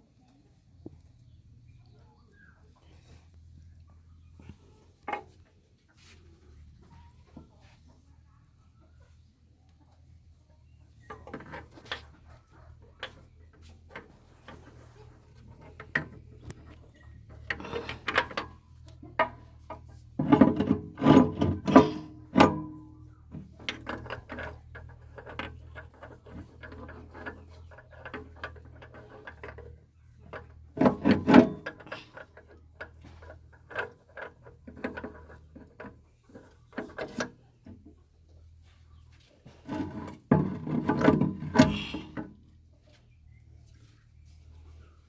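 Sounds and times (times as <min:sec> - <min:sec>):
metal tools clinking and scraping: 0:11.0 - 0:37.9, 0:39.4 - 0:42.4.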